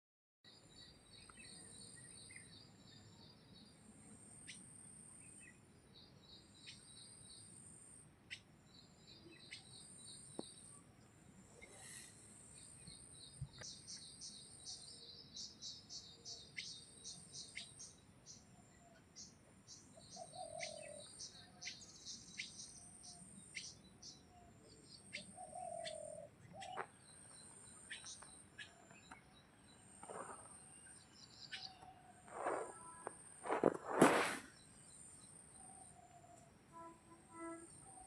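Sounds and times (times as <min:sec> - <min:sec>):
small birds chirping: 0:00.5 - 0:03.9, 0:08.3 - 0:38.0
high insect whine: 0:32.2 - 0:34.6.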